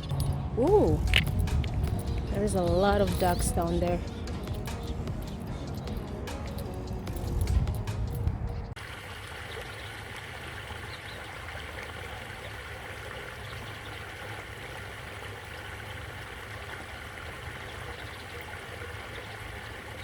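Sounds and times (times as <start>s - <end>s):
bass-heavy sound: 0.0s - 8.7s
trickling water: 0.0s - 20.0s.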